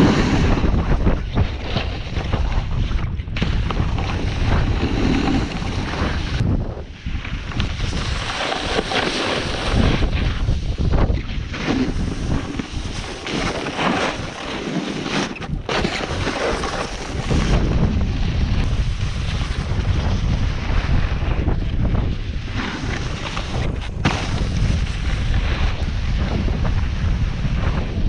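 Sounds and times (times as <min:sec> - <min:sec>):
snowboard carving over snow: 0:00.0 - 0:28.0
wind buffeting microphone: 0:00.0 - 0:28.0.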